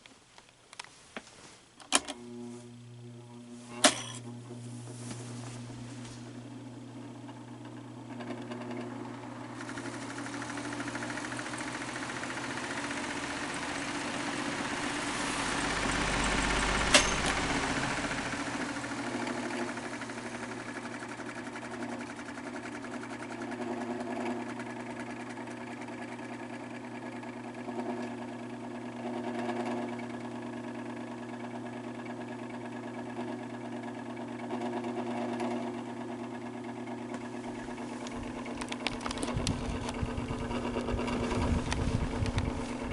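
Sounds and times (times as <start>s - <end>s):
fan motor hum: 0.0s - 42.9s
rattling grinding bearings: 37.5s - 42.9s.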